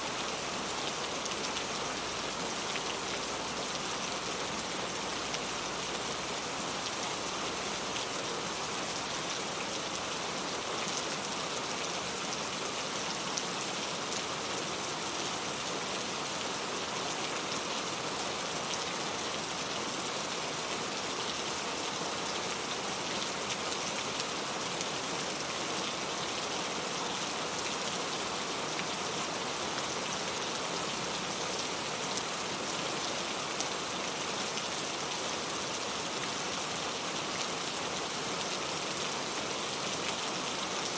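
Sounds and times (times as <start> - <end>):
rain pattering: 0.1 - 10.2.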